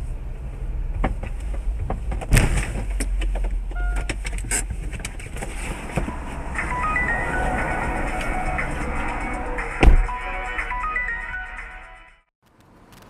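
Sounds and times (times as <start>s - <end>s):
road and engine rumble: 0.0s - 13.0s
knocks and clatter: 0.9s - 6.2s.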